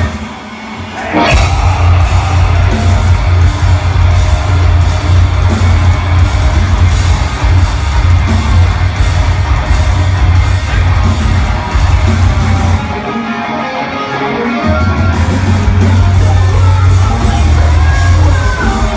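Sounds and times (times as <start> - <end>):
metal band playing loud: 0.0 - 18.9
rising sweep: 0.5 - 12.8.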